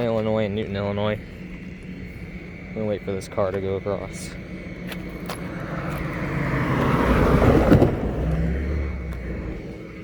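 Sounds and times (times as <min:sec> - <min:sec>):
car driving past: 0:04.4 - 0:10.0.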